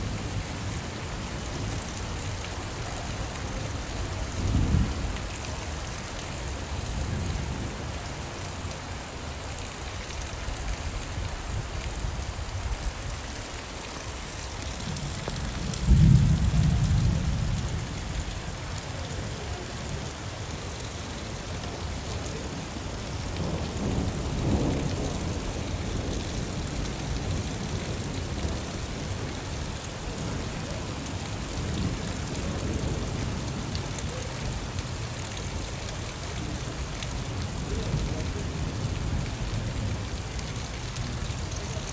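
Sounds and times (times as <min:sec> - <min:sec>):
steady rainfall: 0:00.0 - 0:41.9
low thunder rumbling: 0:14.8 - 0:18.2, 0:23.4 - 0:29.3.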